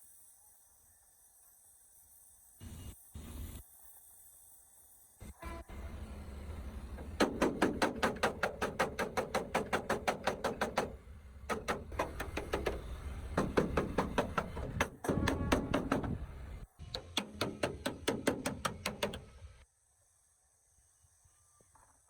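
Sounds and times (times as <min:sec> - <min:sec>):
rapid knocking strikes: 0:07.0 - 0:19.3.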